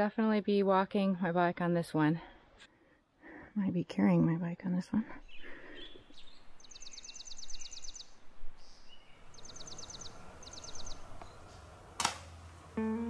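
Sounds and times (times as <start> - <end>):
faint outdoor hiss: 0.0 - 13.0
songbird trilling: 5.2 - 11.5
sharp click: 12.0 - 12.3.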